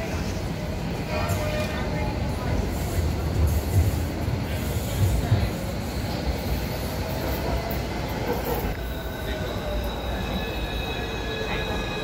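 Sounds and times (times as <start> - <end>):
train rumbling on rails: 0.0 - 12.0
high wheel squeal: 8.6 - 12.0.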